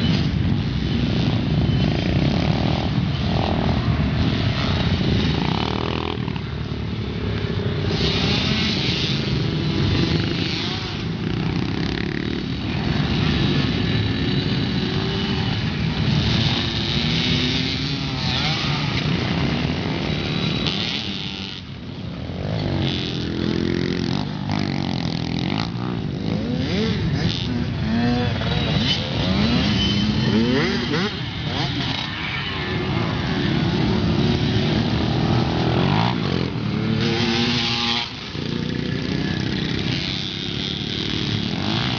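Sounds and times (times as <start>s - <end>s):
pit bike engine revving: 7.5s - 41.9s.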